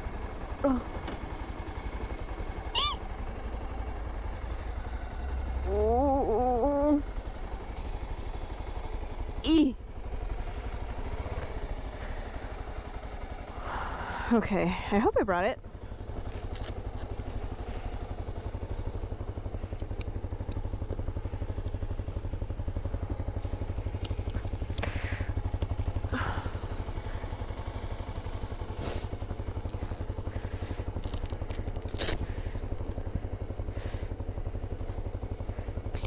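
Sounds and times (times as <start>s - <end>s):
motorcycle idling: 0.0s - 36.0s
gear clattering and rustling: 16.1s - 17.4s, 30.8s - 33.1s.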